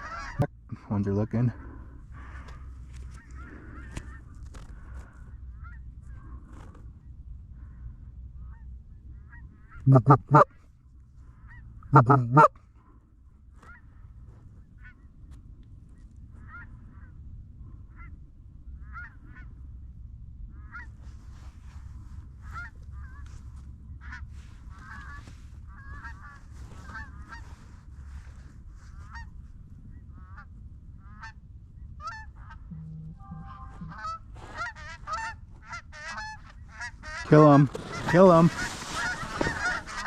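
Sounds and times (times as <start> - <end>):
geese honking and clucking: 0.0 - 0.5, 1.4 - 6.4, 8.4 - 10.6, 11.4 - 12.6, 16.4 - 17.1, 18.8 - 19.5, 20.5 - 21.0, 22.4 - 23.4, 24.0 - 27.8, 30.1 - 40.0.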